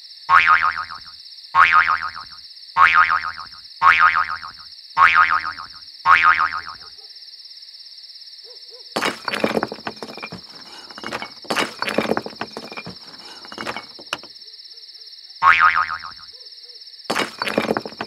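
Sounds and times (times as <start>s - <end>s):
crickets chirping: 14.3s - 15.4s.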